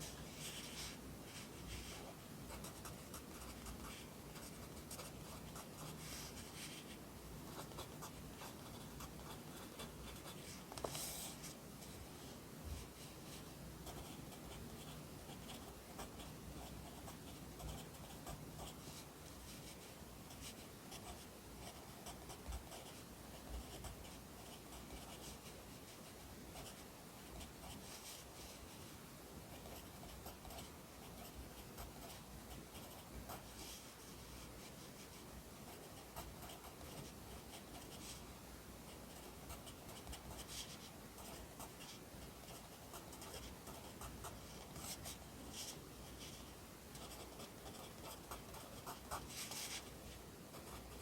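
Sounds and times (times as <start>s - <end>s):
pencil writing on paper: 47.0s - 49.9s.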